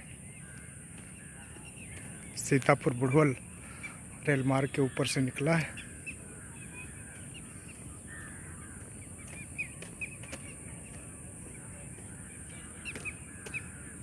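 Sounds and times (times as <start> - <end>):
birds chirping and cawing: 0.0 - 14.0.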